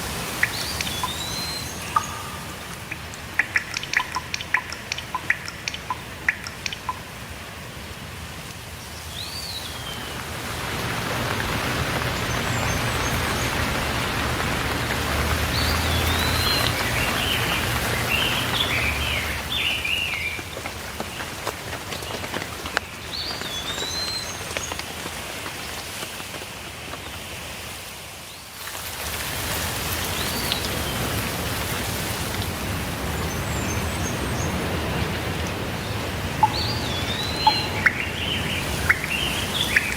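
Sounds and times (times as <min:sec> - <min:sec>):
steady rain falling: 0:00.0 - 0:39.9
birds whistling and chirping: 0:00.3 - 0:07.0, 0:15.5 - 0:20.4, 0:36.4 - 0:39.9.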